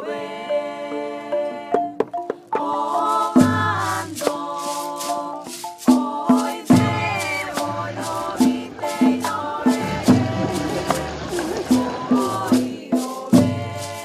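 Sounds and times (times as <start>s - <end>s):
folk song singing: 0.0s - 14.0s
maracas shaking: 1.8s - 14.0s
strong bass: 7.6s - 12.5s.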